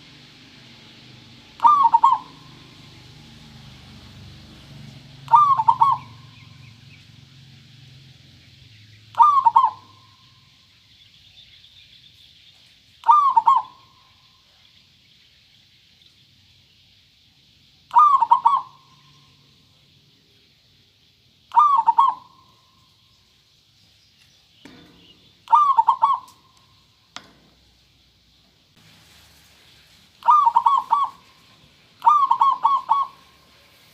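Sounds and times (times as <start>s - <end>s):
dove cooing: 1.6s - 2.8s, 5.2s - 6.6s, 9.1s - 10.3s, 13.0s - 14.0s, 17.9s - 19.0s, 21.5s - 22.6s, 24.7s - 26.5s, 30.2s - 31.4s, 32.0s - 33.6s.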